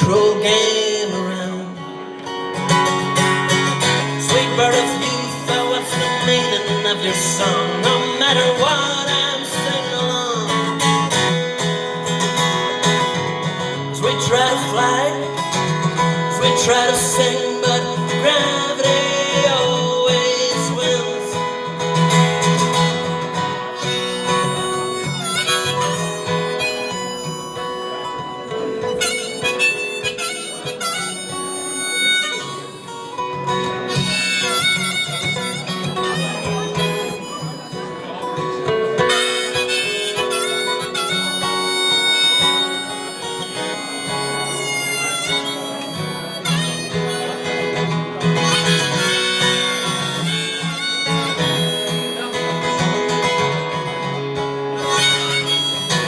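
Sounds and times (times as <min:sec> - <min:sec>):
harmonica melody: 0:00.0 - 0:56.0
strummed acoustic guitar: 0:00.0 - 0:56.0.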